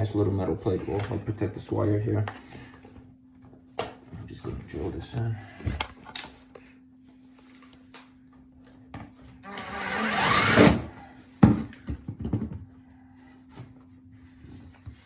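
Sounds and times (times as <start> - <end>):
power drill driving screw into metal: 9.4 - 10.9.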